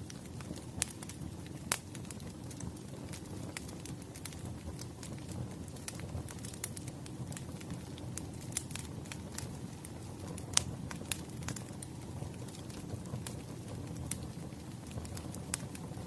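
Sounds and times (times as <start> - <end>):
firewood crackling and popping: 0.0 - 16.0
low rumble of flames: 0.0 - 16.0.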